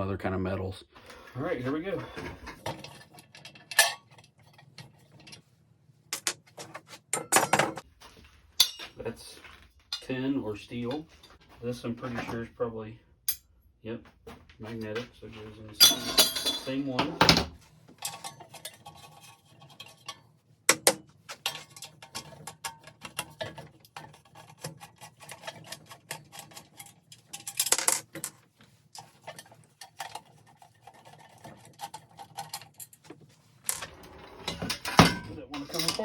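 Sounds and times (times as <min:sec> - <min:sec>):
metal parts clicking and knocking: 0:06.1 - 0:07.8, 0:19.8 - 0:28.4
metal parts clattering: 0:15.8 - 0:16.9, 0:25.3 - 0:28.4, 0:31.4 - 0:36.0.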